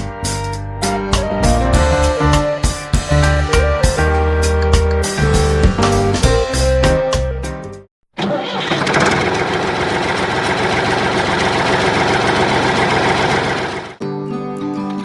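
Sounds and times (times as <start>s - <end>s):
engine running: 8.2s - 14.0s.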